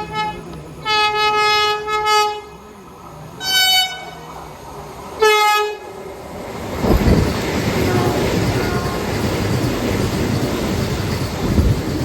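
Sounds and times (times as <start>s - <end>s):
train horn blasts: 0.0s - 2.5s, 3.4s - 4.2s, 5.2s - 5.9s, 7.8s - 9.3s
low train rumble: 0.0s - 12.0s.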